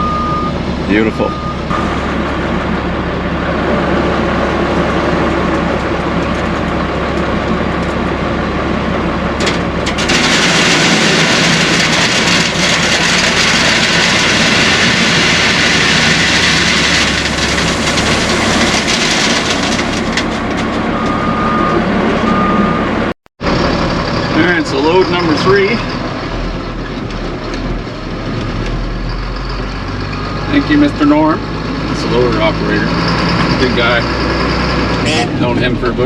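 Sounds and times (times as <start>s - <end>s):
short beep: 0.0s - 1.9s, 21.0s - 22.9s
heavy engine running: 0.0s - 36.0s
stone pouring into dump box: 10.0s - 20.1s.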